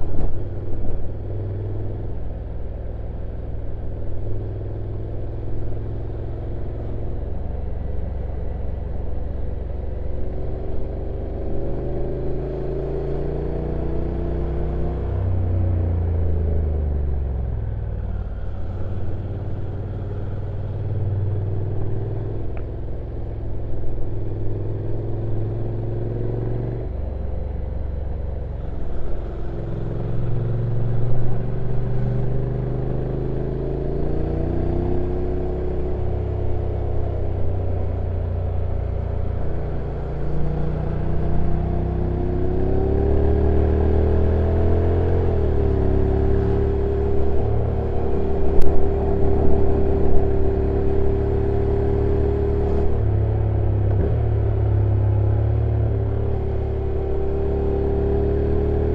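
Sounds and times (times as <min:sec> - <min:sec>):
motorcycle engine running: 0:14.8 - 0:58.9.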